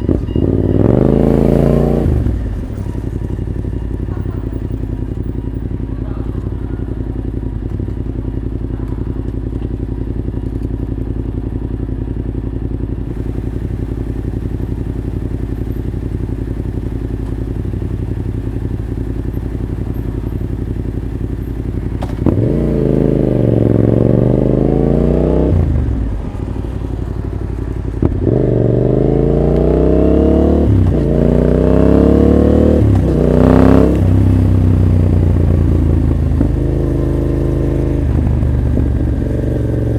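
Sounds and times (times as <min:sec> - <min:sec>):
motorcycle accelerating hard: 0:00.0 - 0:10.8, 0:13.1 - 0:39.9
motorcycle engine idling: 0:00.0 - 0:39.9.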